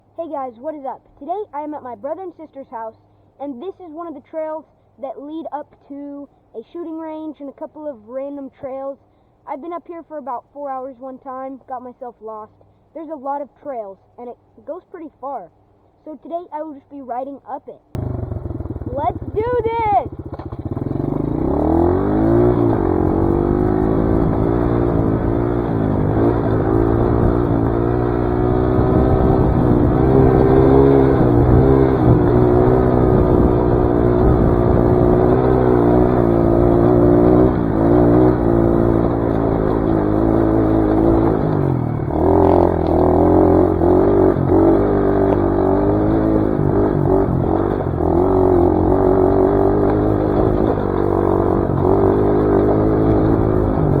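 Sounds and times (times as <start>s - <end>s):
dirt bike engine revving: 18.0s - 54.0s.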